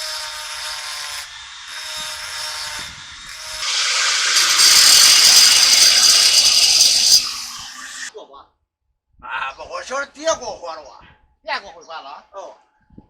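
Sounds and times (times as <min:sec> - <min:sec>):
power tool cutting metal: 0:00.0 - 0:08.1.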